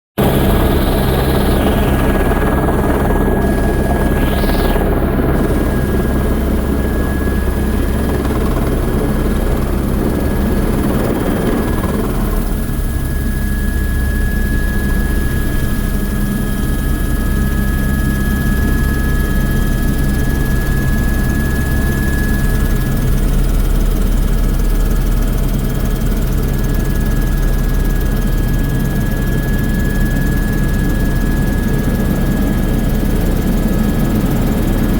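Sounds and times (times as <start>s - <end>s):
rushing noise: 0.2s - 8.8s
helicopter rotor and turbine: 0.2s - 34.9s.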